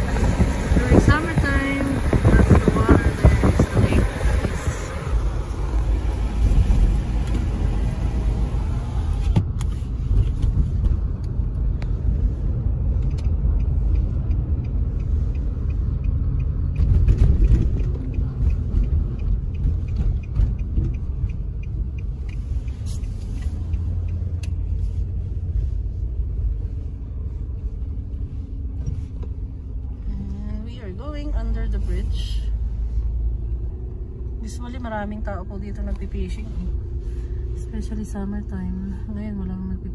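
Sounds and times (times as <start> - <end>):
car rumble from inside cabin: 0.0 - 39.9.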